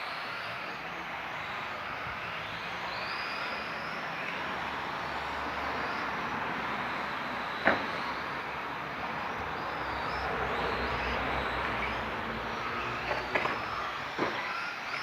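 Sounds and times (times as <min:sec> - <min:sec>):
toy car motor whines: 0:00.0 - 0:15.0.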